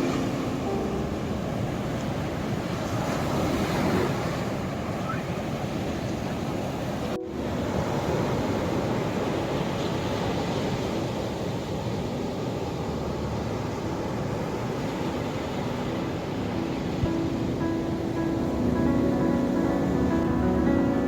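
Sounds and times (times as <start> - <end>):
faint soft music: 0.0 - 3.2, 7.2 - 9.5, 12.6 - 21.0
ocean waves breaking: 0.0 - 21.0.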